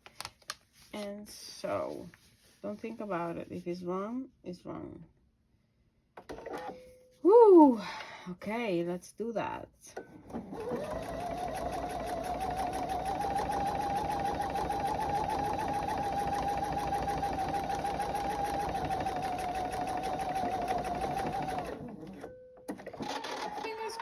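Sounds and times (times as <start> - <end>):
electric sewing machine stitching: 10.3 - 24.0.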